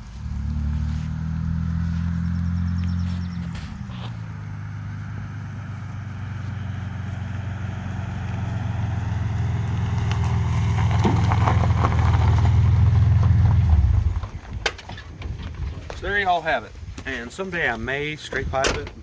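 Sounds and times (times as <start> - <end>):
deep engine exhaust note: 0.0 - 14.3.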